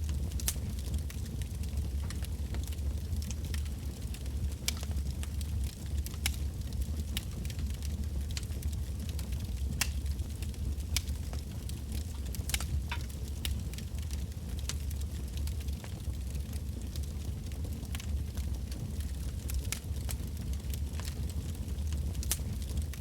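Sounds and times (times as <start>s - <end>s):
burning logs crackling and popping: 0.0s - 23.0s
low rumble of bonfire flames: 0.0s - 23.0s.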